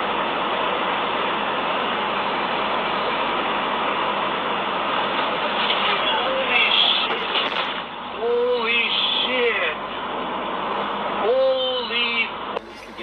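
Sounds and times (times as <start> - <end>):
road noise: 1.6 - 13.0
vehicle engine: 5.0 - 13.0.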